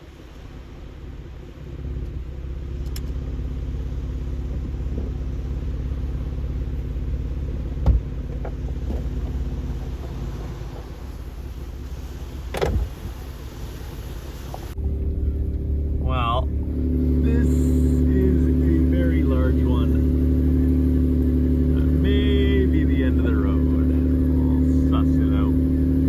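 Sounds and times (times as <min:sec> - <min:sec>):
engine running at low speed: 0:00.0 - 0:26.0
sharp thump: 0:07.8 - 0:09.1, 0:12.5 - 0:13.0.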